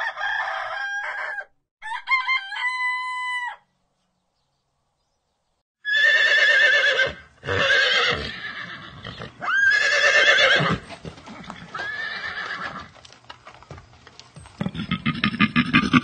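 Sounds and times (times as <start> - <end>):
horse whinnying: 5.8 - 12.9.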